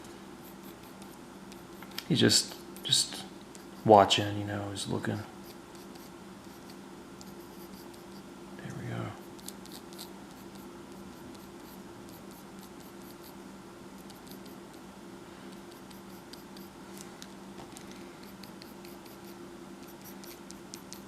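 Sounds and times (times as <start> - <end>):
low electrical hum: 0.0 - 21.0
pencil scratching on paper: 0.4 - 1.7, 5.4 - 8.2, 9.2 - 13.4, 14.0 - 14.7, 15.5 - 16.8, 18.2 - 21.0.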